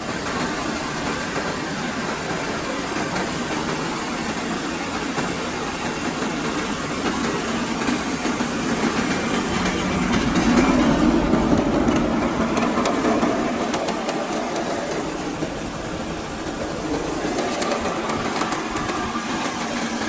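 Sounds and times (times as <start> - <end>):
engine driving rice mill: 0.0 - 20.0.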